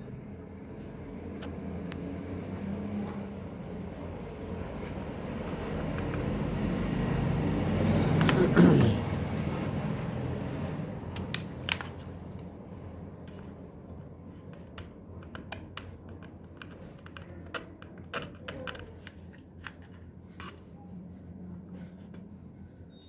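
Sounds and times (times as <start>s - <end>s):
light clicks and taps: 5.8s - 6.4s.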